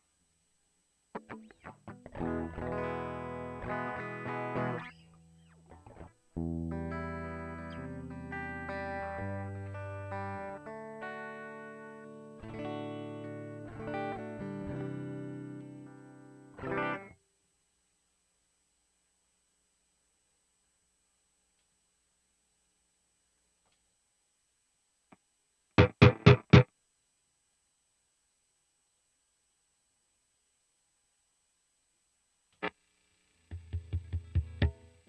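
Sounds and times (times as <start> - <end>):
electric guitar chords and notes: 1.2 - 17.1, 25.8 - 26.7.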